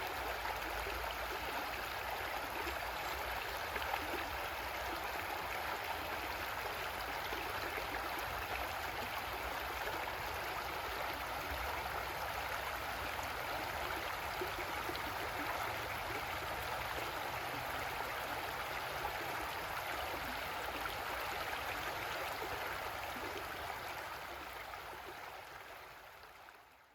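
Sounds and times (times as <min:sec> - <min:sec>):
creek water gurgling over rocks: 0:00.0 - 0:26.9.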